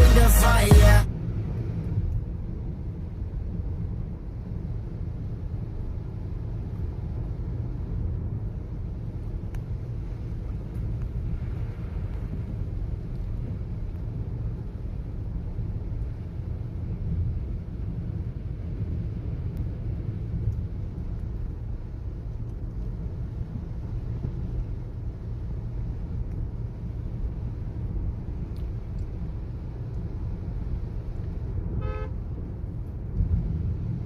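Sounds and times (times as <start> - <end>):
moving car rumble: 0.0 - 34.0
car horn toot: 31.8 - 32.2.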